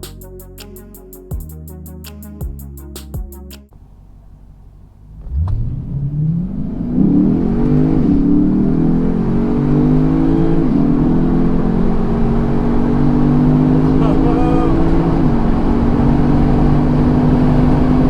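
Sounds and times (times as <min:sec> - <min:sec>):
car engine accelerating hard: 0:03.9 - 0:18.0.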